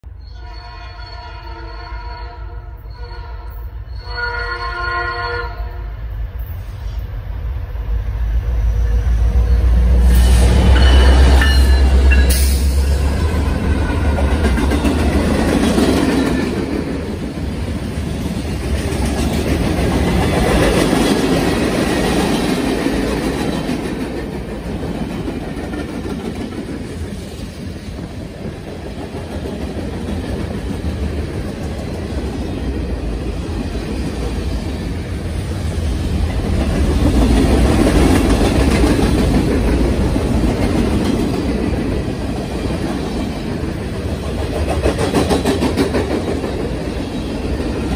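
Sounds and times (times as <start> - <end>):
diesel locomotive passing: 0.0 - 47.9
train wheels on rails: 6.0 - 47.9.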